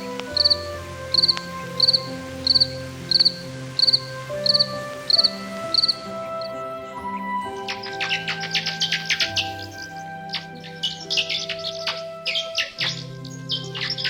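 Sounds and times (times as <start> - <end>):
cricket chirping: 0.3 - 6.5.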